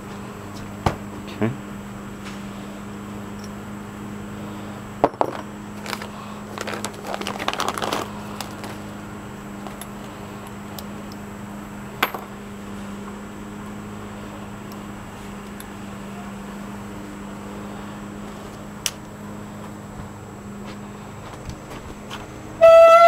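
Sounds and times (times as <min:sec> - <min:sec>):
steady low hum: 0:00.0 - 0:23.0
small metal parts clinking: 0:05.0 - 0:08.8, 0:12.0 - 0:12.4.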